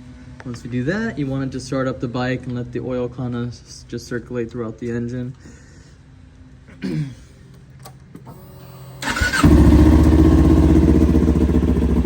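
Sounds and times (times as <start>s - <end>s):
motorcycle starter cranking: 8.2s - 12.0s
motorcycle engine idling: 9.0s - 12.0s.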